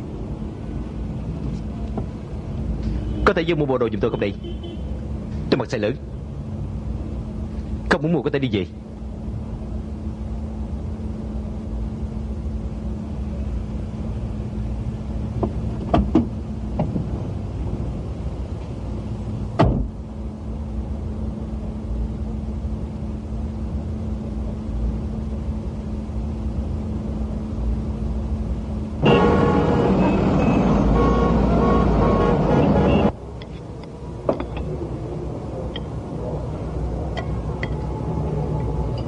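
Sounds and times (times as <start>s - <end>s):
car door shutting: 15.4s - 17.1s, 19.6s - 20.0s.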